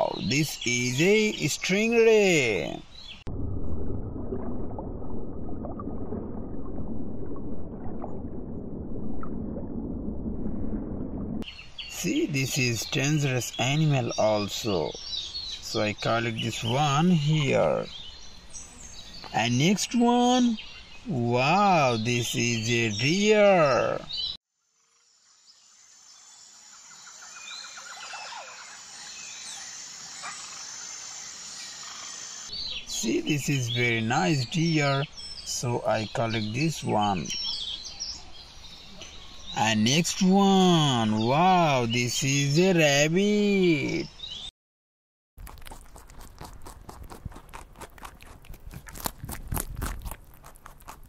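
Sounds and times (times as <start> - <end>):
birds chirping: 0.0 - 3.3, 11.4 - 24.4, 25.5 - 44.5.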